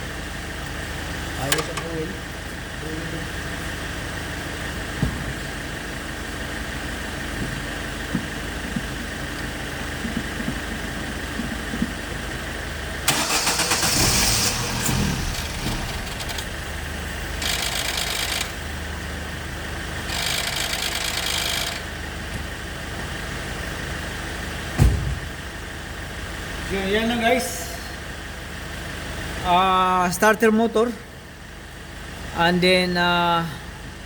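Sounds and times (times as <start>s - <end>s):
car engine running: 0.0s - 27.1s.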